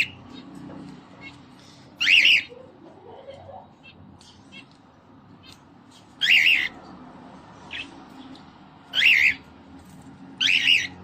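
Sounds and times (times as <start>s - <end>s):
cockatiel calling: 2.0s - 2.6s, 6.2s - 6.8s, 8.9s - 9.4s, 10.4s - 11.0s.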